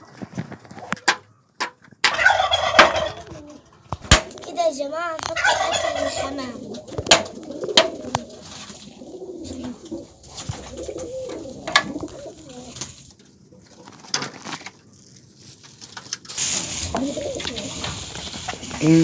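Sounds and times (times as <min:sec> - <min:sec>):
pigeons cooing: 0:02.1 - 0:03.8, 0:05.2 - 0:14.0, 0:16.6 - 0:19.0.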